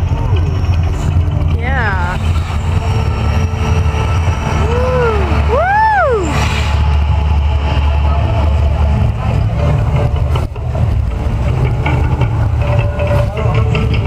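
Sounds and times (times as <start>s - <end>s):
deep loud rumbling: 0.0s - 14.0s
person whooping: 4.6s - 6.4s.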